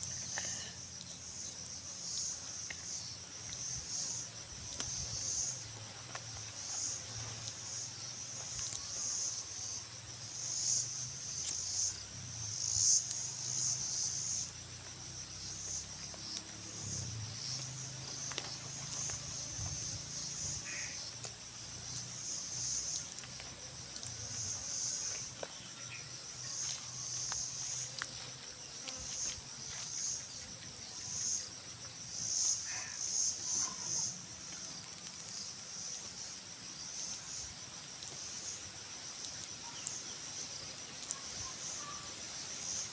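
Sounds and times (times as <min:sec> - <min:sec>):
pulsing insect trill: 0:00.0 - 0:42.9
high-pitched insect drone: 0:07.7 - 0:23.1.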